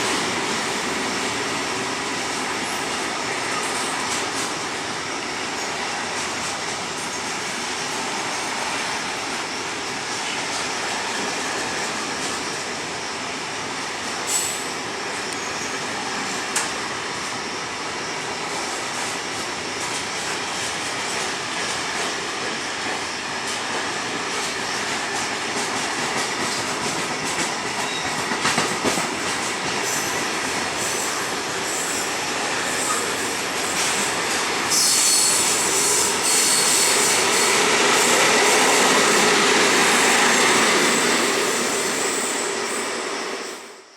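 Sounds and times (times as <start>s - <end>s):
train wheels on rails: 0.0s - 43.9s
high wheel squeal: 29.8s - 43.7s.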